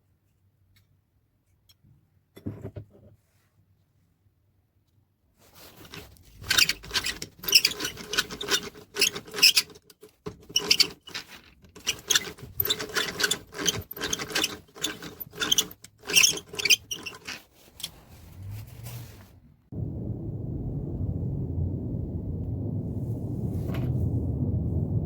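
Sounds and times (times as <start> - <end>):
hand drill gears whirring and clicking: 5.9 - 17.5.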